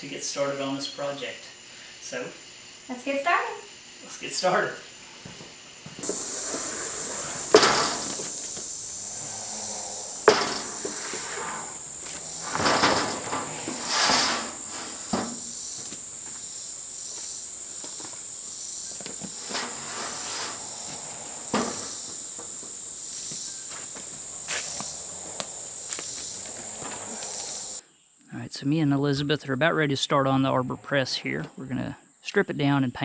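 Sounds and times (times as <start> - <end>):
insect chirring: 0.0 - 28.3
knocks and clunks: 5.9 - 9.3, 10.1 - 16.4, 19.0 - 27.2.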